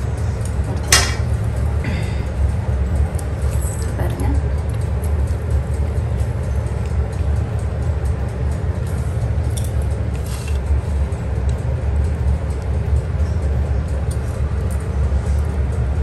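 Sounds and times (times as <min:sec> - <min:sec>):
low rumbling hum: 0:00.0 - 0:16.0.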